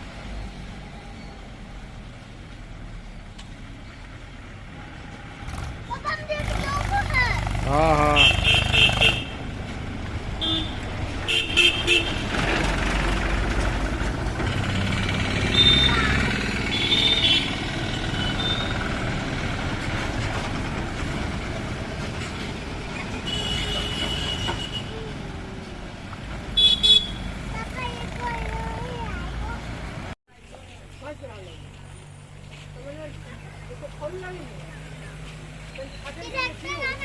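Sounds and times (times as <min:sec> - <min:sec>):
tractor engine running: 0:05.5 - 0:30.2.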